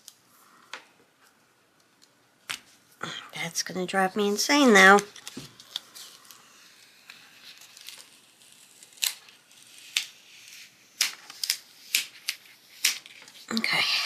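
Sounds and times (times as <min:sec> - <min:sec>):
soft paper rustling: 0:04.6 - 0:14.0.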